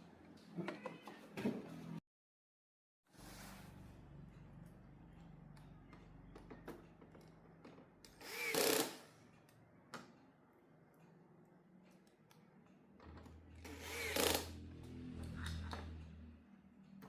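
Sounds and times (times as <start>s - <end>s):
small motor humming: 8.2s - 9.0s, 13.7s - 14.6s.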